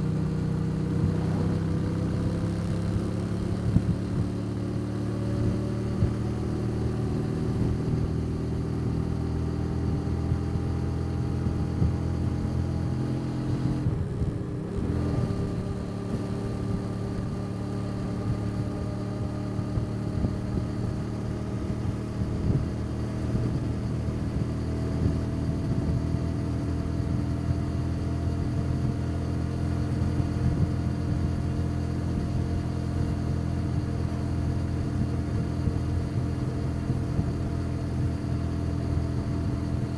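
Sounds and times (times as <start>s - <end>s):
motorbike engine accelerating: 0.0s - 4.4s.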